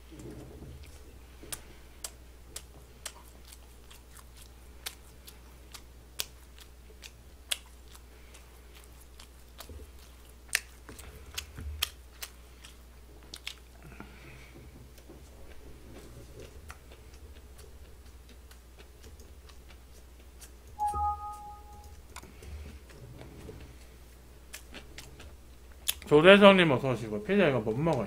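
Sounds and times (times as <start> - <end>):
chewing mouth clicks and smacks: 0.8 - 14.1, 16.0 - 20.8, 24.5 - 26.1.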